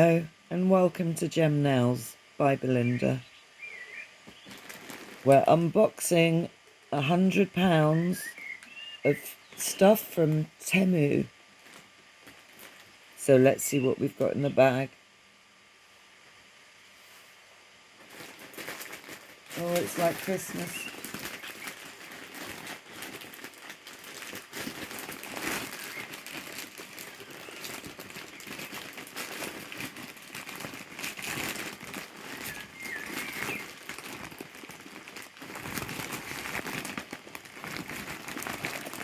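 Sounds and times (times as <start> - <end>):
plastic packaging crinkling: 2.8 - 6.0, 7.3 - 13.2, 18.0 - 39.0.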